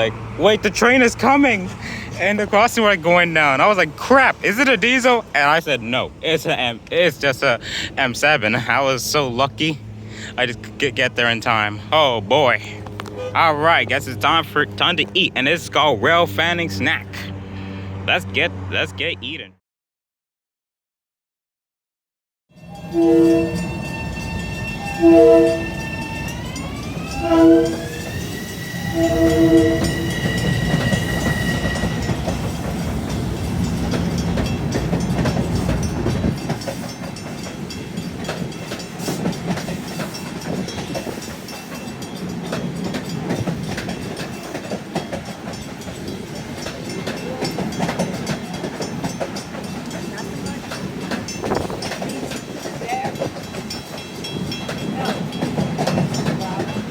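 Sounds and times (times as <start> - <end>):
train rumbling and clattering past: 0.0 - 19.5, 22.6 - 56.9
train horn blasts: 22.6 - 32.2
rising whine: 24.1 - 32.0.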